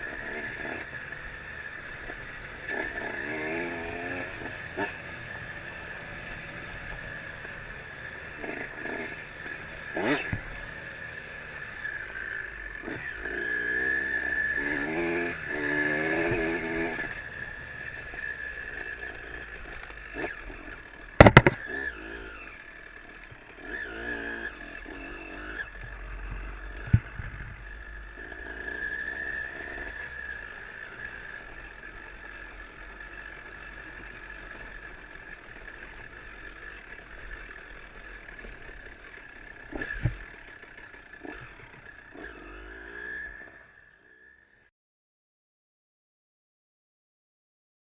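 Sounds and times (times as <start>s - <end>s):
motorcycle engine revving: 0.0s - 44.7s
sharp knocks and clatters: 21.2s - 21.6s.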